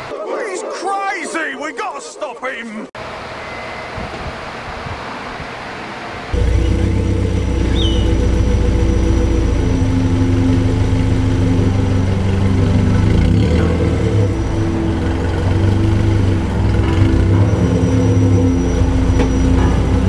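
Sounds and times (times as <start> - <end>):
car engine running: 6.3 - 20.0.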